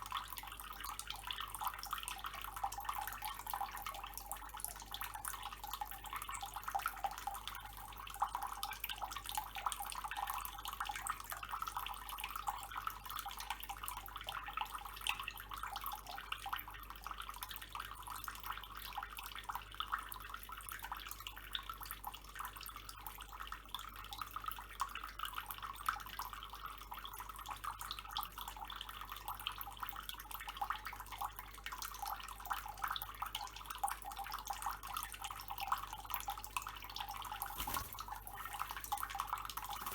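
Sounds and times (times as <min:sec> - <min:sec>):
small drips spattering: 0:00.0 - 0:39.9
tap water running and splashing: 0:36.1 - 0:39.9.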